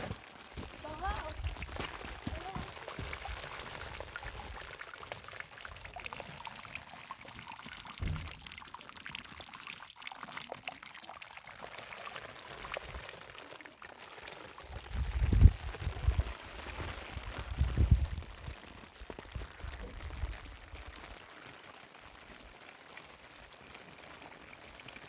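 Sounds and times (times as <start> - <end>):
faint crackles: 0.0 - 5.5
wind buffeting microphone: 14.9 - 16.3, 17.3 - 18.3.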